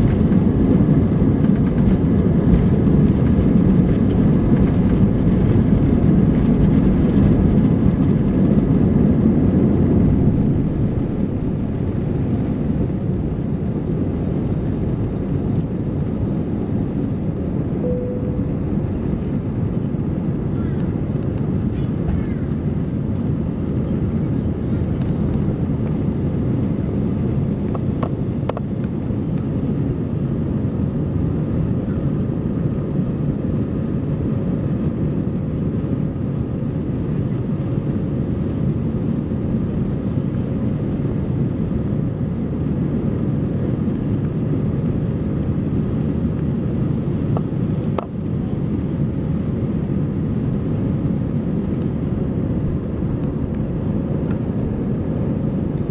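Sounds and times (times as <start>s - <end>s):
jet engines rumbling: 0.0s - 55.9s
faint steady hum: 17.8s - 19.2s.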